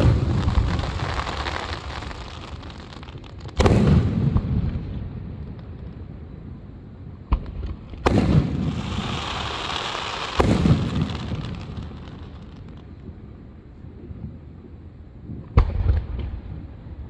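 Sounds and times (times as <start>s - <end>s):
fireworks bangs and booms: 0.0s - 13.4s
high hiss of fireworks: 0.0s - 13.7s.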